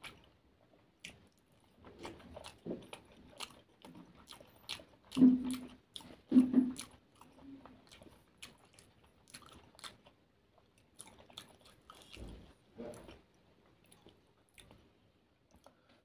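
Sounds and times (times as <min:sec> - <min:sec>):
chewing with mouth closed: 0:00.0 - 0:15.9.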